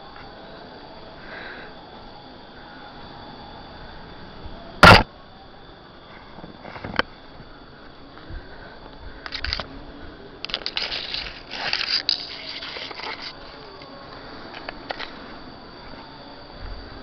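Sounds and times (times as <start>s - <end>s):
quick crackles: 10.4s - 13.6s
rustling and scraping: 10.5s - 13.8s.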